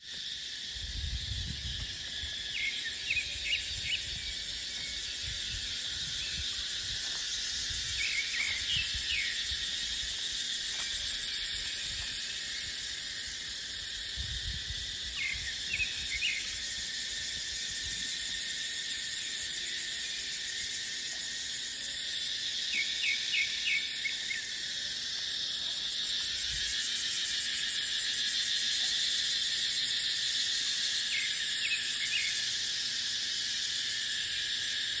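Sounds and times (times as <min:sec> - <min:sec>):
cicadas droning: 0:00.0 - 0:35.0
wind rumbling on microphone: 0:00.8 - 0:02.4, 0:14.0 - 0:16.2.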